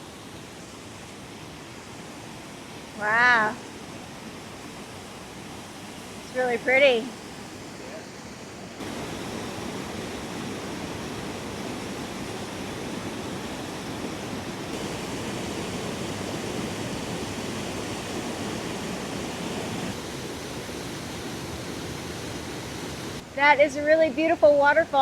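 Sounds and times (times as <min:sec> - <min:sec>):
waterfall rushing: 0:08.8 - 0:23.2.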